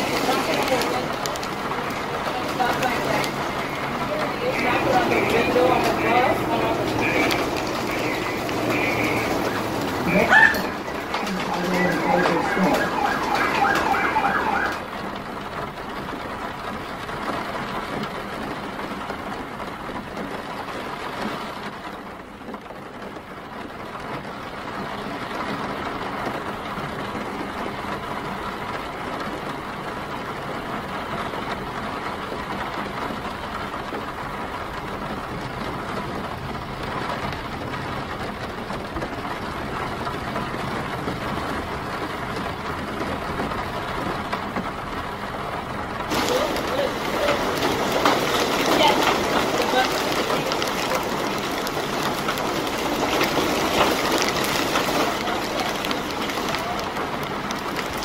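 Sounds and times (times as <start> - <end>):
emergency vehicle siren: 0.0 - 15.4, 46.1 - 58.0
city street traffic: 0.0 - 58.0
steady rain: 0.0 - 58.0.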